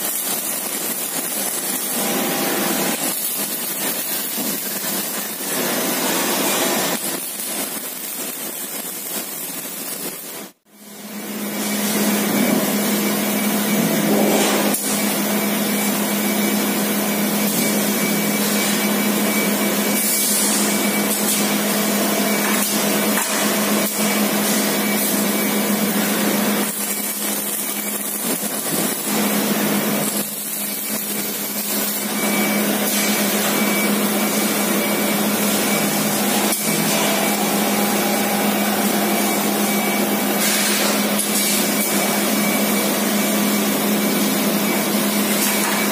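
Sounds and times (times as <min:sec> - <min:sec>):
factory machinery rushing noise: 0:00.0 - 0:09.6, 0:10.8 - 0:45.9
faint high whine: 0:29.9 - 0:45.9.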